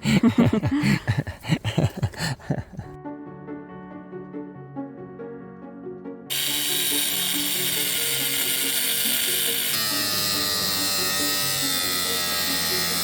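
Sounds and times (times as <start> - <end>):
soft background music: 3.0 - 13.0
power tool whining: 6.3 - 13.0.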